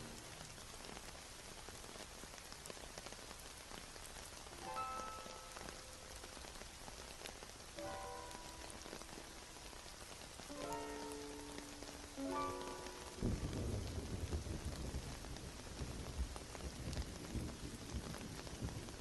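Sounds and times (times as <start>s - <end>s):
steady rain with drops ticking: 0.0s - 19.0s
faint soft music notes: 4.6s - 6.2s, 7.8s - 9.8s, 10.4s - 13.9s.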